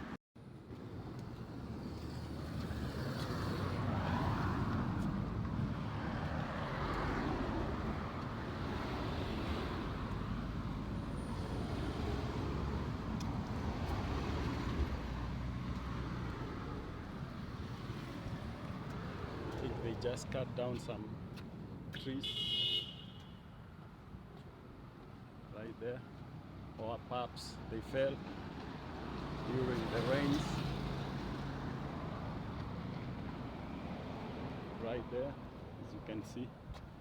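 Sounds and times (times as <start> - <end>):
road traffic rumble: 0.4 - 37.0.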